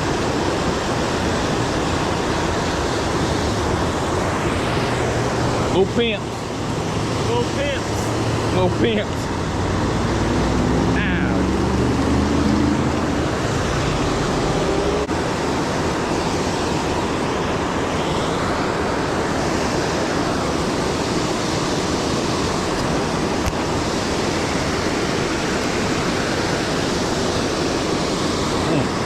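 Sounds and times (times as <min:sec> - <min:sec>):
river water rushing: 0:00.0 - 0:29.0.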